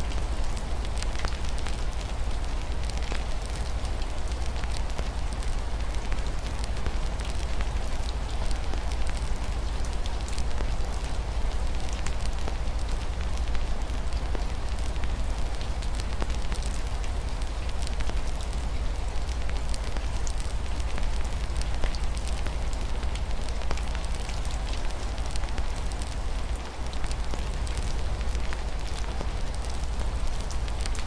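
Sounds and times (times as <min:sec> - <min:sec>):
constant low rumble: 0:00.0 - 0:31.0
wood fire crackling: 0:00.1 - 0:31.0.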